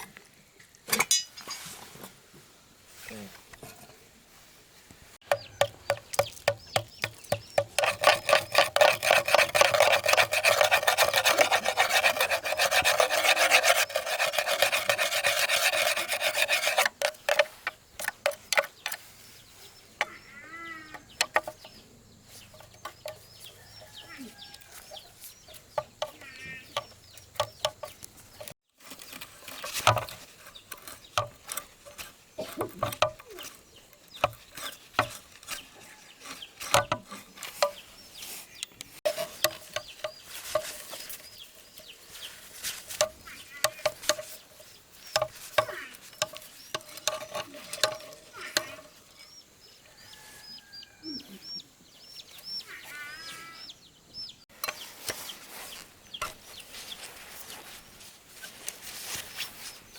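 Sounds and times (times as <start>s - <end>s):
hand scraping strokes on a part: 6.2s - 17.6s.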